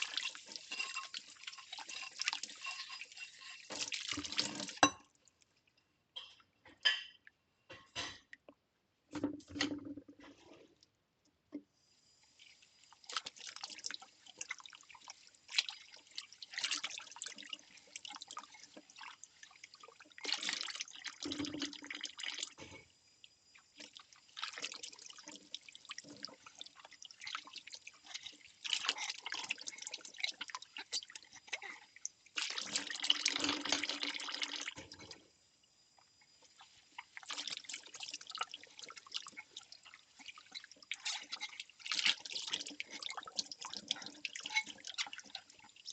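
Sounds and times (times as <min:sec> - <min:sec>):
water trickling and splashing: 0:00.0 - 0:05.5, 0:12.1 - 0:35.3, 0:35.9 - 0:45.9.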